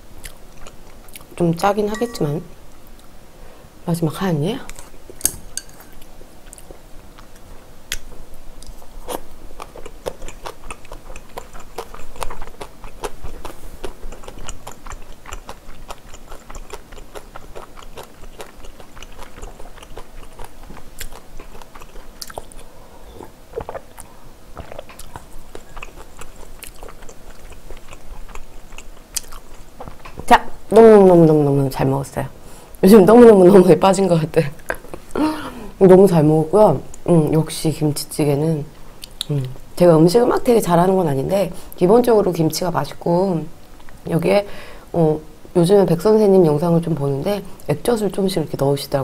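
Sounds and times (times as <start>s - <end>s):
person chewing food: 0.2s - 1.4s, 5.6s - 30.2s.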